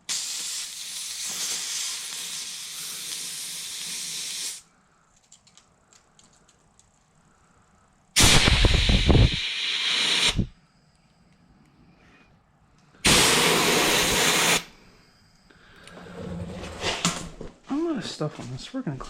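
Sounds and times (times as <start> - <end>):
compressed air blasts hissing: 0.0 - 4.7, 8.1 - 10.6, 13.0 - 15.0.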